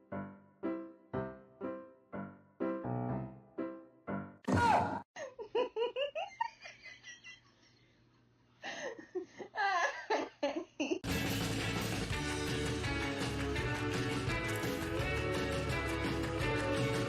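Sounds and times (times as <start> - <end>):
person laughing: 5.2 - 7.5, 8.7 - 11.0.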